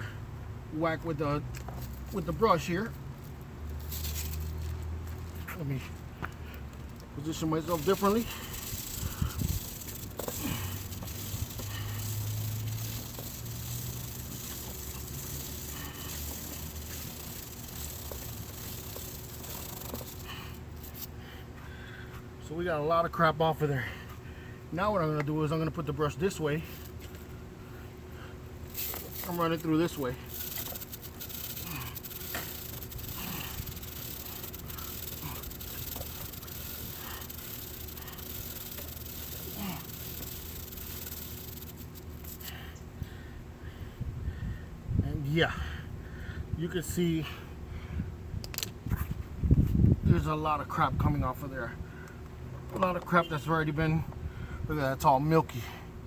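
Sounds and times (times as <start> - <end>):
brush scrubbing a chain: 1.8 - 5.9, 7.2 - 21.1, 28.6 - 42.6
steady hiss: 7.2 - 21.1, 28.6 - 42.7.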